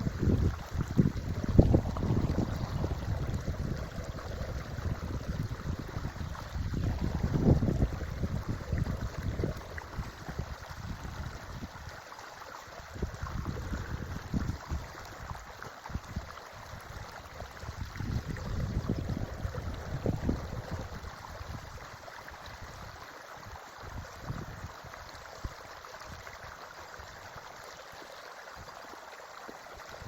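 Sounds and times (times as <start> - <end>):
wind buffeting microphone: 0.0 - 12.0, 12.8 - 23.0
creek water running: 0.0 - 30.0.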